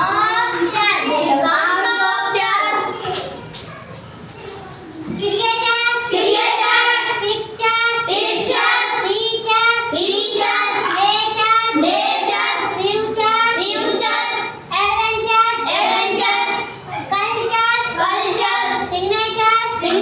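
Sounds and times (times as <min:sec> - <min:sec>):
children chanting in unison: 0:00.0 - 0:03.1, 0:05.3 - 0:20.0.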